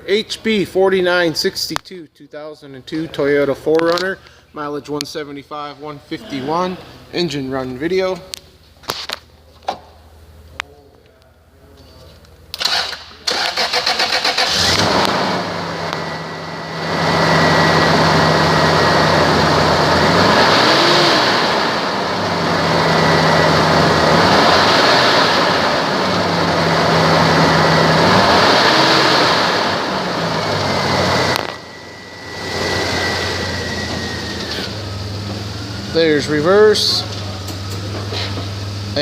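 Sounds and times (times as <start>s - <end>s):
car engine revving: 12.6s - 39.0s.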